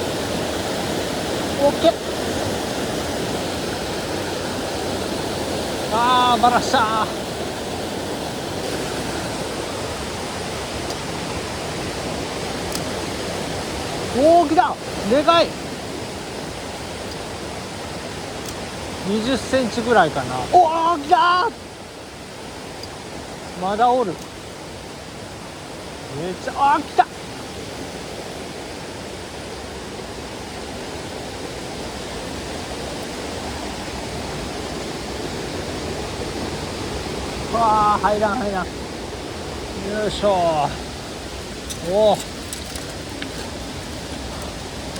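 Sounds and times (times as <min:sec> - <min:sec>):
stream rushing over rocks: 0:00.0 - 0:44.9.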